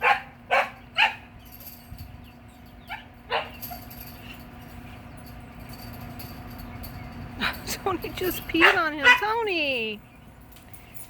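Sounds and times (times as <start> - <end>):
dog barking: 0.0 - 1.3, 2.9 - 3.6, 8.6 - 9.4.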